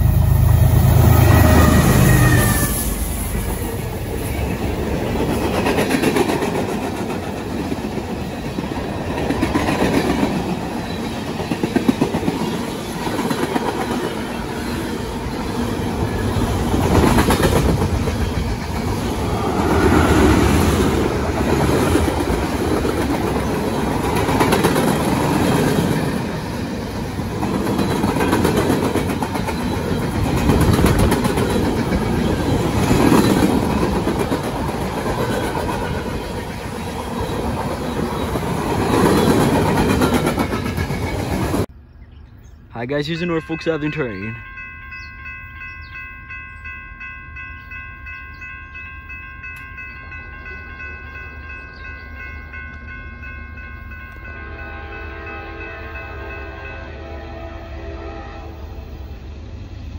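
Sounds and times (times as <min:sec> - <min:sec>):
steel wheels rumbling on rail: 0:00.0 - 0:41.7.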